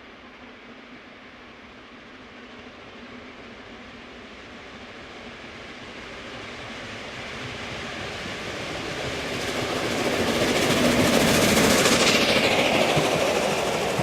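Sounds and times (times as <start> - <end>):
steam locomotive working hard: 4.7 - 14.0.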